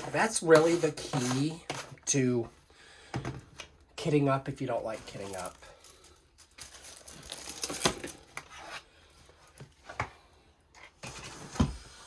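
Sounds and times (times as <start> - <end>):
small hard objects clattering: 5.0 - 8.2.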